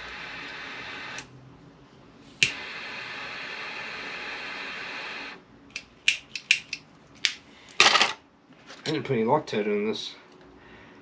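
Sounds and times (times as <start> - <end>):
heat tool hissing: 0.0 - 1.3, 2.4 - 5.4.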